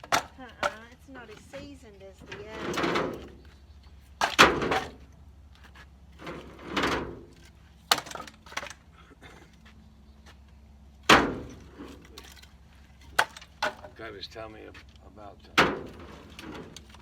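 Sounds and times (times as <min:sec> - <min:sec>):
firewood pieces knocking together: 0:00.0 - 0:03.5, 0:04.1 - 0:08.9, 0:11.0 - 0:14.0, 0:15.6 - 0:17.0.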